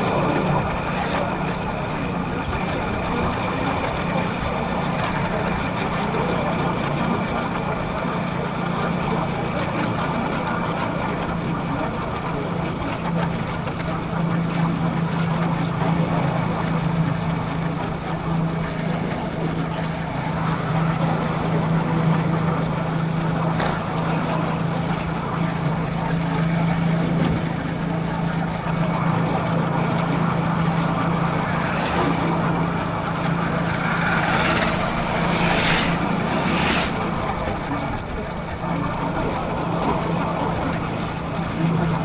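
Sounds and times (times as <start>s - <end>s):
road noise: 0.0s - 42.0s
motorcycle engine humming: 16.8s - 41.8s
rushing wind: 28.0s - 40.3s
short rising sounds: 30.6s - 38.3s.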